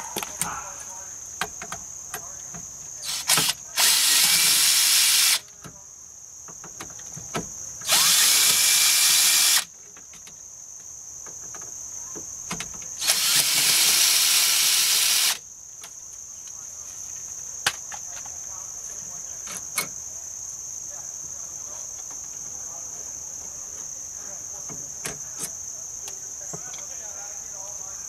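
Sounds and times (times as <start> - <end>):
power drill running: 3.1 - 5.4, 7.9 - 9.7, 13.0 - 15.4.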